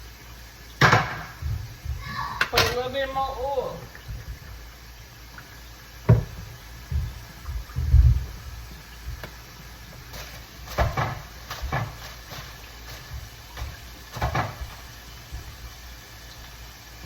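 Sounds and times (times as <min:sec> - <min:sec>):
low thuds: 0:00.9 - 0:02.2, 0:06.0 - 0:09.4
cookware clattering: 0:02.4 - 0:03.2.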